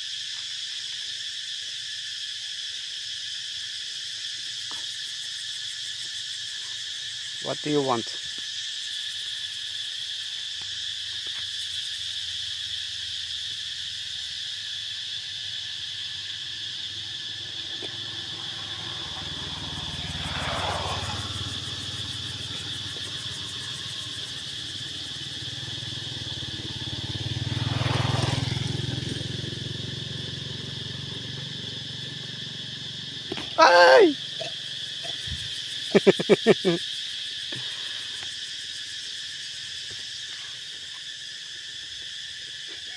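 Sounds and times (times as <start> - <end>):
high drone of insects: 0.0 - 42.9
motor vehicles passing by: 10.8 - 42.6.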